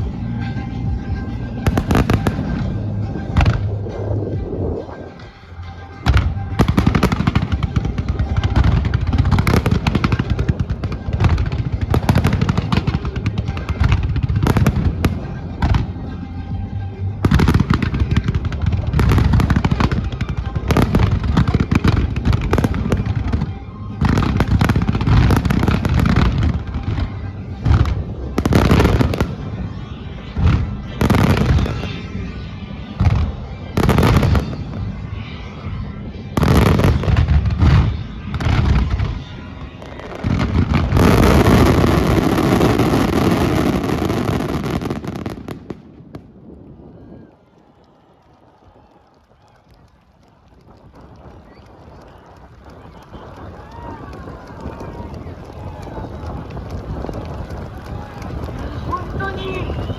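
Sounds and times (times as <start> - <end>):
show music over loudspeakers: 0.0 - 45.6, 58.6 - 59.9
fireworks bursting: 0.0 - 59.9.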